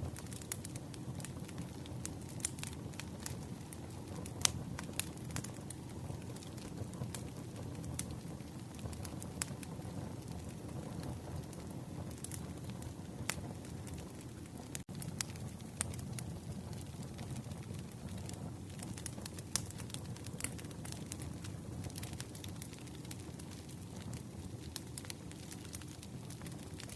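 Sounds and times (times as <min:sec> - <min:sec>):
burning wood crackling and popping: 0:00.0 - 0:26.9
rumble of campfire flames: 0:00.0 - 0:26.9.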